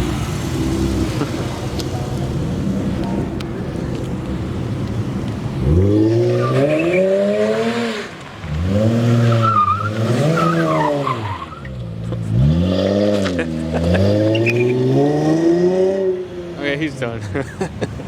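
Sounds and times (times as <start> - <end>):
car engine revving hard: 5.6 - 11.3, 12.2 - 16.2
tyres spinning and squealing: 5.7 - 11.9.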